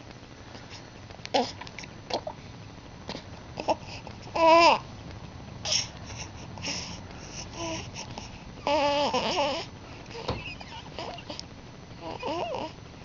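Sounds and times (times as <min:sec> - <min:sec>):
baby babbling: 0:08.6 - 0:10.3, 0:12.0 - 0:12.8.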